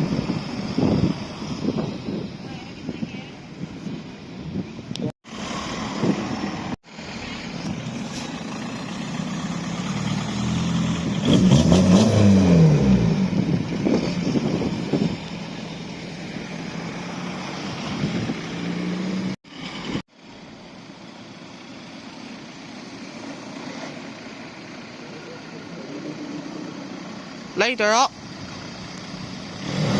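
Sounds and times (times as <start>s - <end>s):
car engine revving driving by: 5.3s - 20.0s
engine running quietly: 19.5s - 27.6s.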